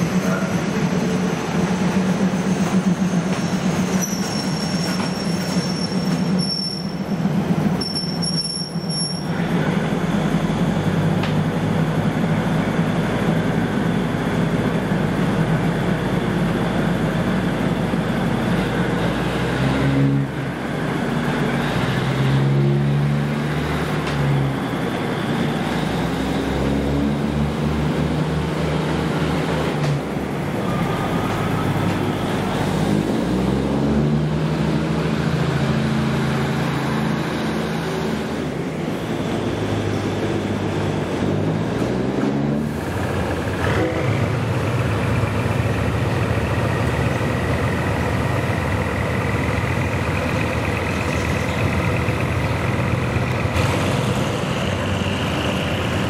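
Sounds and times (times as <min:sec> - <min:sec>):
railcar engine low drone: 0:00.0 - 0:56.0
steel wheels squealing thinly: 0:02.3 - 0:07.2, 0:07.8 - 0:09.4.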